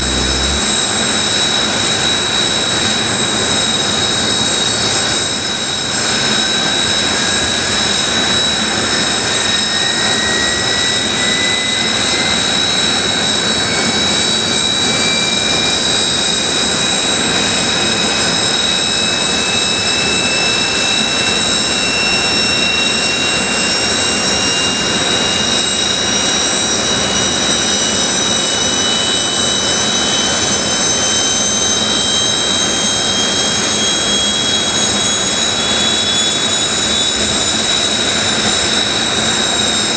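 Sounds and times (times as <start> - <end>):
jet engines whining: 0.0 - 1.5, 18.1 - 39.9
jet engine spooling up: 0.0 - 1.8, 17.0 - 39.9.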